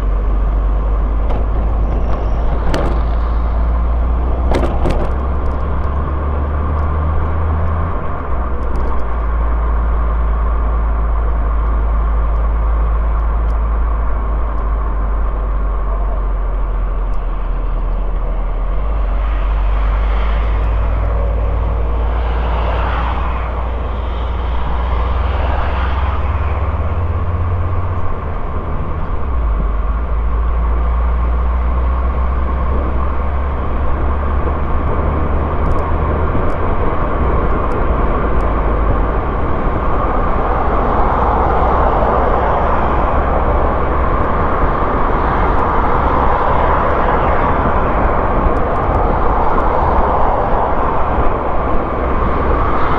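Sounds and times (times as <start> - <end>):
car engine and tyre drone: 0.0 - 52.9
passing traffic: 0.0 - 52.9.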